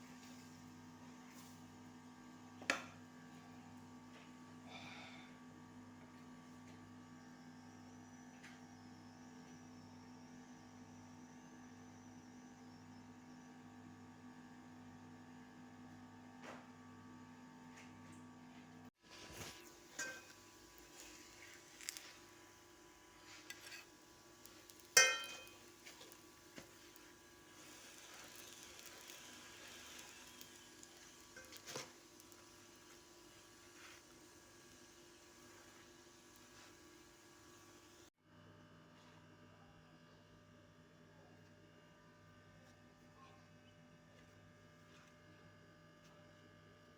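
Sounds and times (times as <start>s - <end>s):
faint frying sizzle: 0.0s - 16.6s, 19.0s - 38.1s
faint electrical hum: 0.0s - 46.9s
metal clank: 25.0s - 25.6s.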